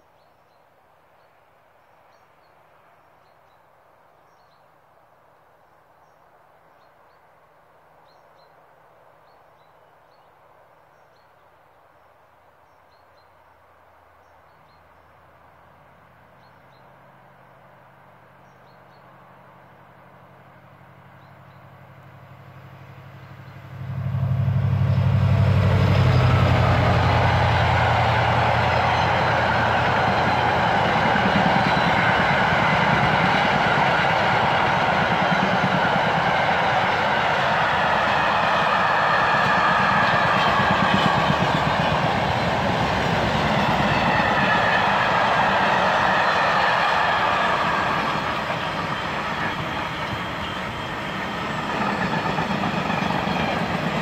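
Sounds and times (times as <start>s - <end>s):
train wheels rushing on rail: 22.0s - 54.0s
train engine deep note: 23.1s - 32.9s.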